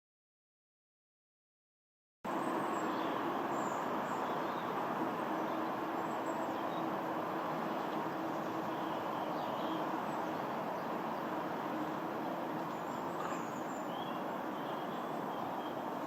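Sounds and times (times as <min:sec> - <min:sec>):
distant jet airliner roar: 0:02.3 - 0:16.0
faint bird chirps: 0:12.7 - 0:15.9.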